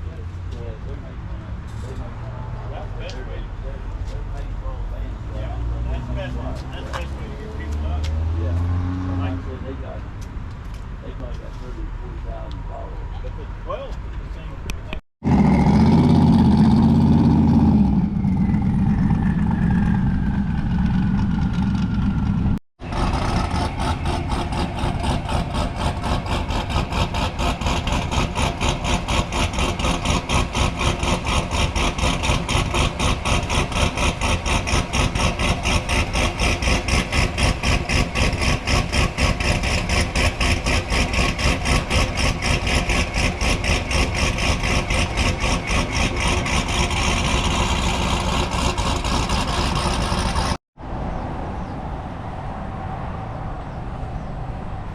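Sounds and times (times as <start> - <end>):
loud car engine: 0.0 - 13.2, 14.9 - 54.9
engine idling with rapid pulse: 18.0 - 50.6.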